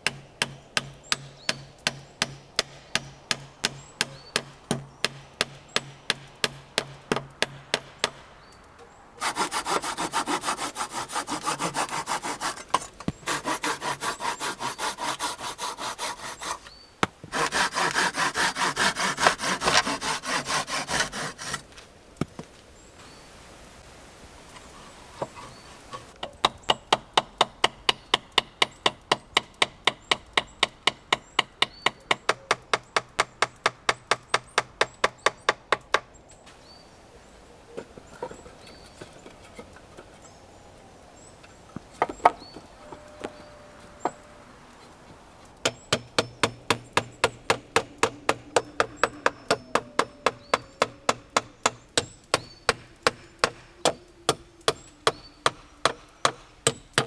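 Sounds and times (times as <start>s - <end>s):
blade chopping wood: 9.2s - 22.5s.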